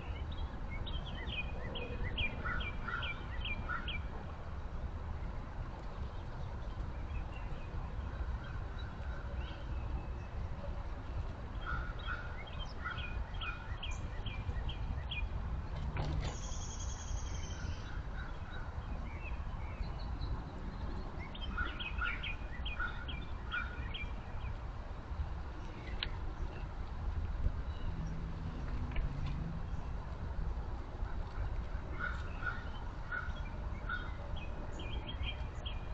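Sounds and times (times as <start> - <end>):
songbird singing whistled notes: 12.0 - 15.3, 16.2 - 18.0, 19.1 - 24.5.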